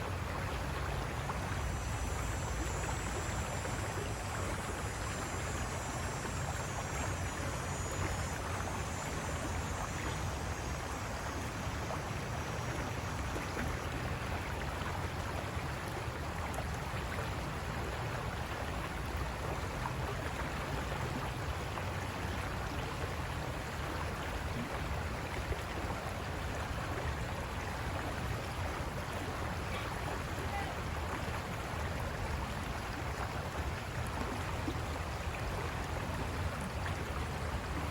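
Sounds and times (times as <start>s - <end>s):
river water rushing over rocks: 0.0s - 37.9s
faint high-pitched tone: 1.5s - 11.9s.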